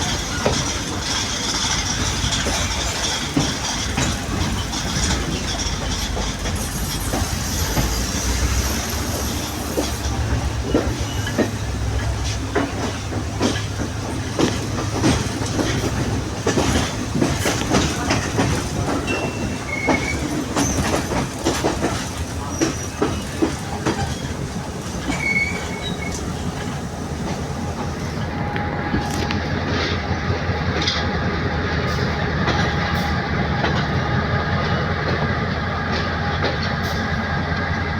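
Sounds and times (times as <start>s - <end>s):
wheel squeals: 0.0s - 26.8s
wheels clattering over rails: 0.0s - 35.3s
train engine hum: 0.0s - 37.9s.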